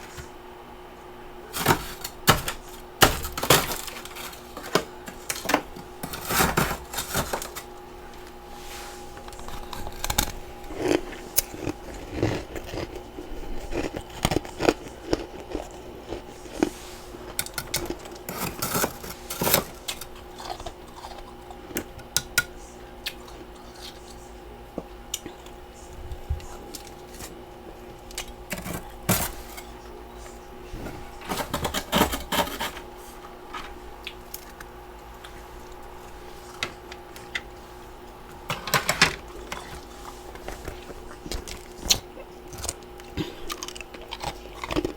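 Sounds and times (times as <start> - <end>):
faint steady hum: 0.0 - 44.9
ice crunching while chewed: 1.5 - 8.4, 9.1 - 22.4, 23.0 - 25.6, 26.4 - 29.7, 39.2 - 44.9.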